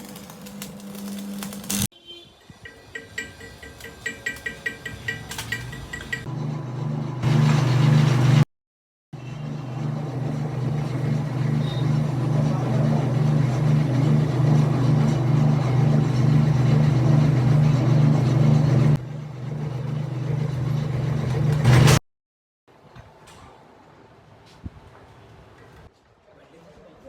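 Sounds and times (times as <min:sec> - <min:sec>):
arc welding hum and crackle: 0:00.0 - 0:01.9, 0:09.4 - 0:21.9.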